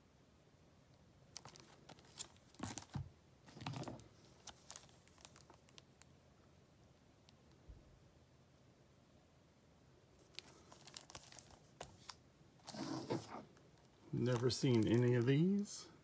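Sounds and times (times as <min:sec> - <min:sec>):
plastic clicks and crinkles: 0:01.3 - 0:06.1, 0:10.2 - 0:15.7.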